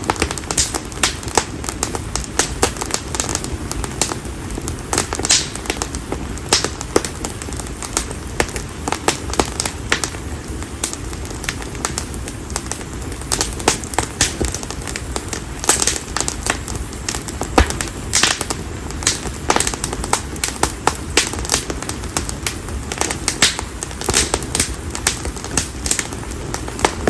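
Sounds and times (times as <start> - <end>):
firewood crackling and popping: 0.0 - 27.0.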